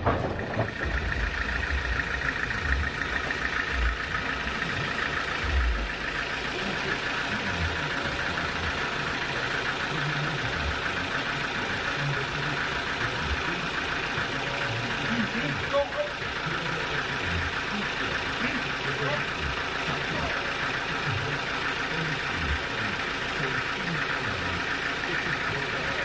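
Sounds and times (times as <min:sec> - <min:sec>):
low thumps: 0:00.0 - 0:04.1
sawmill machinery engine running: 0:00.0 - 0:26.0.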